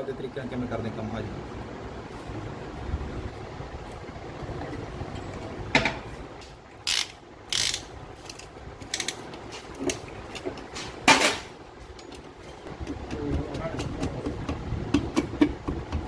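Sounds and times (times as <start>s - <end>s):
metal tools clattering on workbench: 10.8s - 11.5s.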